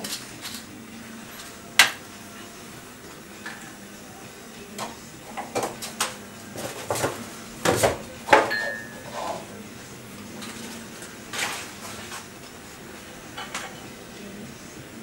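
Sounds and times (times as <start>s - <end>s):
steady high tone: 8.5s - 11.0s.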